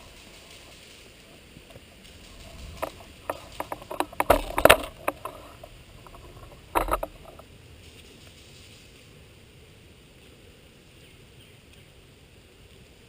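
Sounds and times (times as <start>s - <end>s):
rustling: 0.0s - 9.4s
sharp clicks and knocks: 1.7s - 7.4s.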